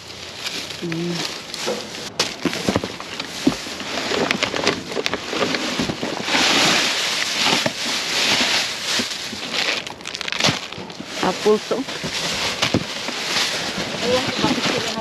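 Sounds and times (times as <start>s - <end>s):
plastic packaging rustling: 0.0s - 15.0s
small knocks and clatters: 1.4s - 11.2s.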